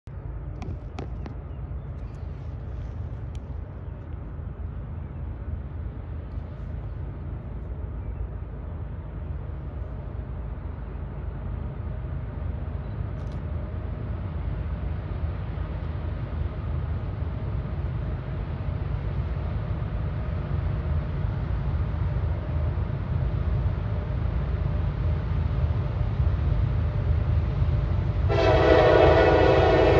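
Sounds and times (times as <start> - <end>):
diesel locomotive engine rumble: 0.0 - 29.9.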